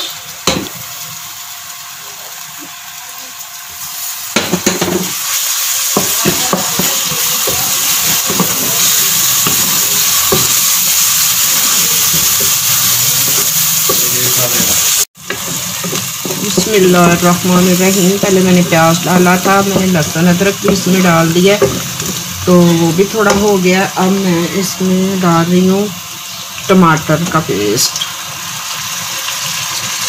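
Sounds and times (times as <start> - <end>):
onions sizzling in hot oil: 0.0 - 30.0
wooden spatula stirring and scraping: 5.2 - 17.3.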